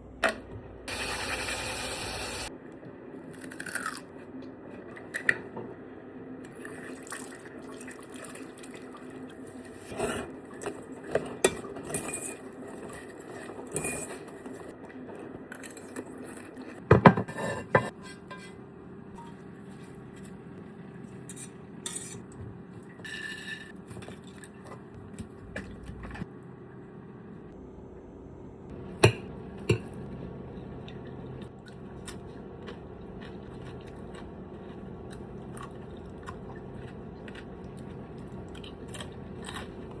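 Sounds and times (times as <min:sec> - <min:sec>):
steady low hum: 0:17.3 - 0:40.0.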